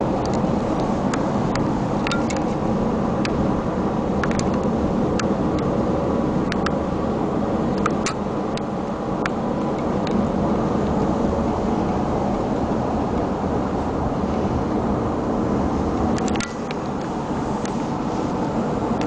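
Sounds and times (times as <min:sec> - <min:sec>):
vehicle driving on road: 0:00.0 - 0:19.0
sharp clicks and rattles: 0:00.2 - 0:02.6, 0:04.1 - 0:05.7, 0:06.4 - 0:06.8, 0:07.7 - 0:11.0, 0:16.1 - 0:17.8.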